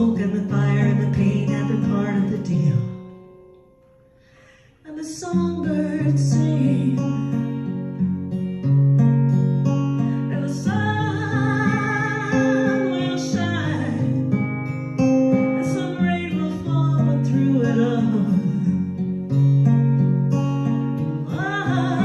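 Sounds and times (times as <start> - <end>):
person singing with vibrato: 0.0 - 3.1, 4.4 - 7.4, 10.1 - 14.5, 15.3 - 19.0, 21.2 - 22.0
acoustic guitar strumming: 0.0 - 22.0.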